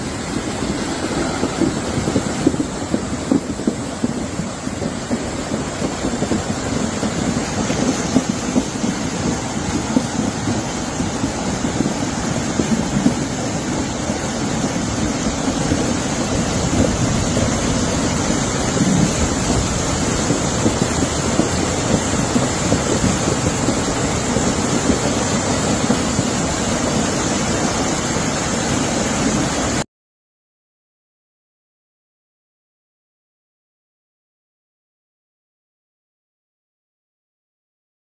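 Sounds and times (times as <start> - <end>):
wind gusting over microphone: 0.0 - 29.8.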